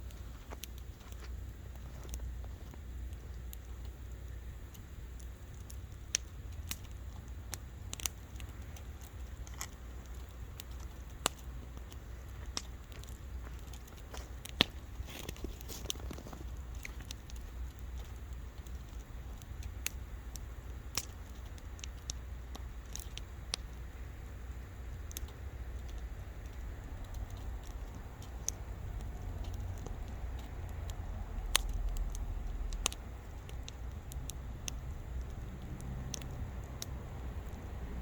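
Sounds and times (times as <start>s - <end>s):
bonfire crackling: 0.0s - 38.0s
low rumble: 24.1s - 38.0s.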